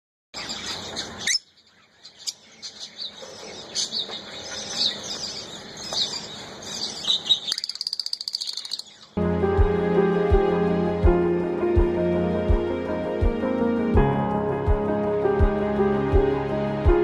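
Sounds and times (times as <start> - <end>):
lovebirds chirping: 0.4 - 9.2.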